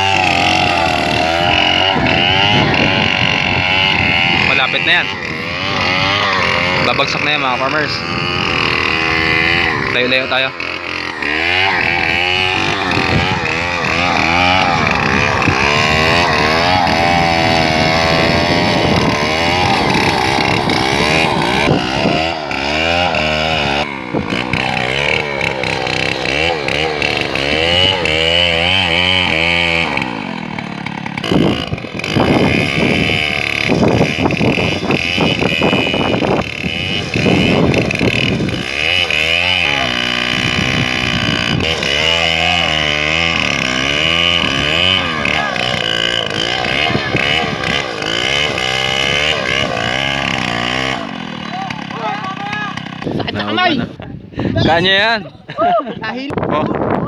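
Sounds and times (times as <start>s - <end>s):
chainsaw cutting tree trunk: 0.0s - 53.9s.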